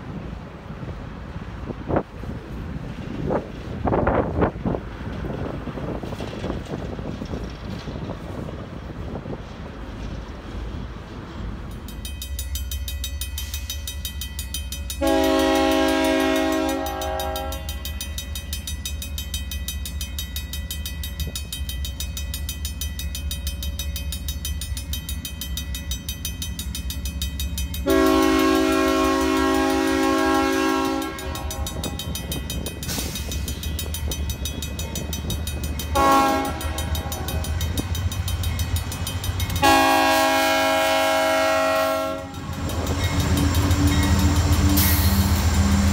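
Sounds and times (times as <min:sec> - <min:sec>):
train rumbling: 0:00.0 - 0:45.9
locomotive air horn blasts: 0:15.0 - 0:17.8, 0:27.8 - 0:32.0, 0:35.9 - 0:37.5, 0:39.6 - 0:42.6.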